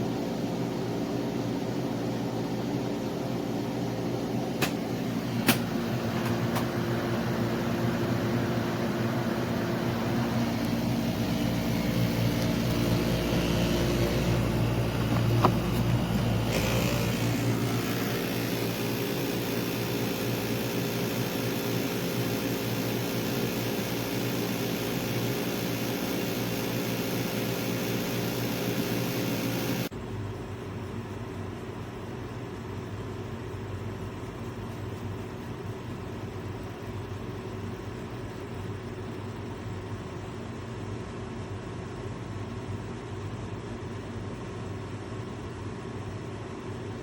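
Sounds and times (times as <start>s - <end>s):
air conditioner running: 0.0s - 47.0s
sharp click: 4.6s - 4.8s, 5.4s - 6.7s.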